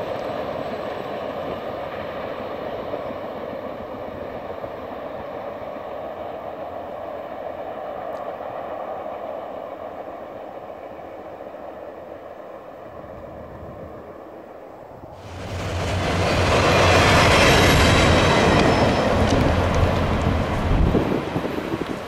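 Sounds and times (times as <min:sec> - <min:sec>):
train wheels clattering on rails: 0:15.2 - 0:22.0.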